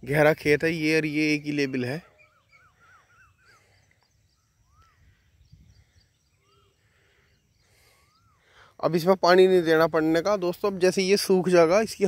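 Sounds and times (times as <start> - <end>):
faint bird calls: 0.8 - 9.2
faint high chirps: 1.2 - 9.4.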